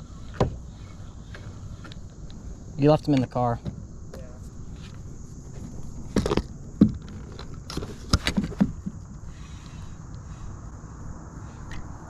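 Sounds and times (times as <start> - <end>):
sharp knocks and rattles: 6.0 - 9.2
steady low rumble: 8.7 - 12.0.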